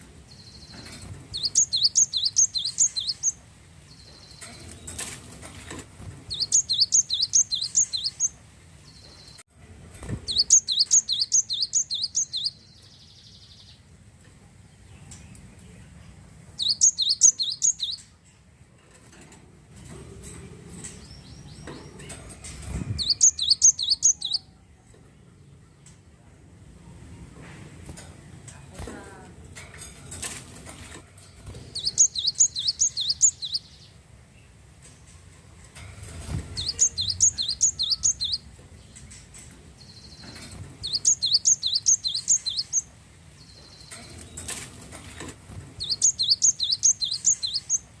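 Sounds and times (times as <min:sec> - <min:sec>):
faint repeated bird notes: 0:00.0 - 0:09.5, 0:10.2 - 0:27.4, 0:31.2 - 0:48.0
bird high chirps: 0:00.3 - 0:05.0, 0:06.3 - 0:09.4, 0:10.3 - 0:13.8, 0:16.6 - 0:18.2, 0:22.6 - 0:24.6, 0:31.4 - 0:33.9, 0:36.5 - 0:39.1, 0:39.8 - 0:44.6, 0:45.8 - 0:48.0.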